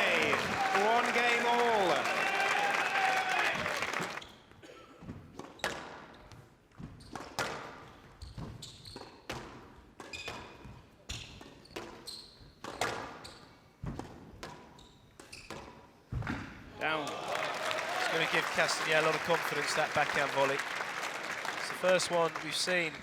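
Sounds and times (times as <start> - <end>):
shoes squeaking on court: 8.2 - 9.4, 10.0 - 13.6.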